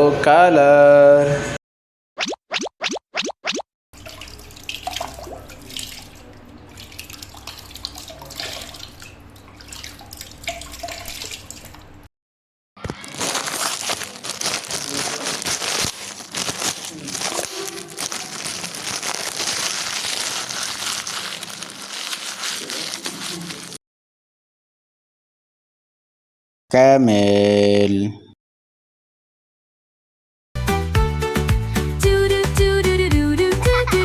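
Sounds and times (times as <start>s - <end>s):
water splashing and running: 4.0s - 12.0s, 15.8s - 23.8s
plastic toys and bags crinkling: 12.8s - 23.8s.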